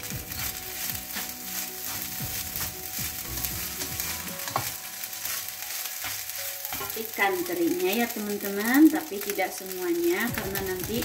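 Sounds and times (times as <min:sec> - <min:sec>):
rice sizzling in a wok: 0:00.0 - 0:11.0
spatula scraping a pan: 0:00.2 - 0:07.0.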